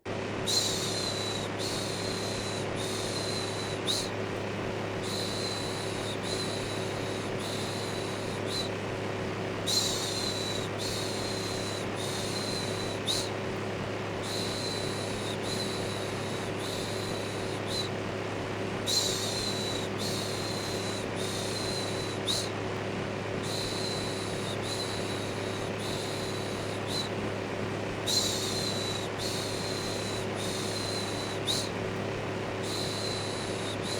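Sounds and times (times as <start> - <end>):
electric fan humming: 0.0 - 33.9.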